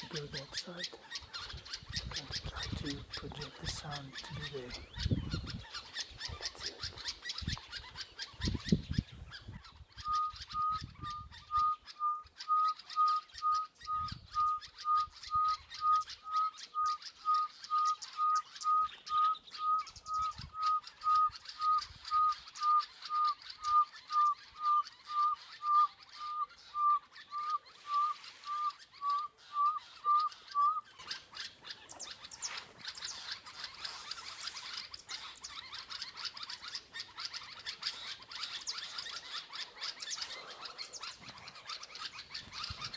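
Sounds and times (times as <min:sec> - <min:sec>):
small birds chirping: 0:00.0 - 0:42.9
owl whistled notes: 0:10.0 - 0:31.0.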